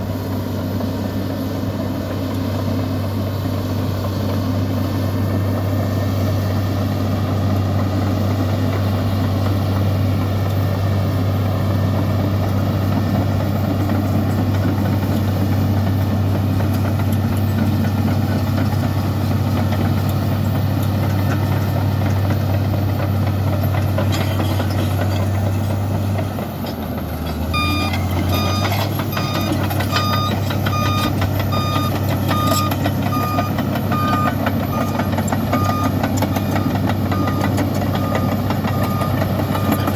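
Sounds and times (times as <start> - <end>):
bulldozer diesel engine running: 0.0 - 39.9
reversing alarm beeping: 27.5 - 39.9.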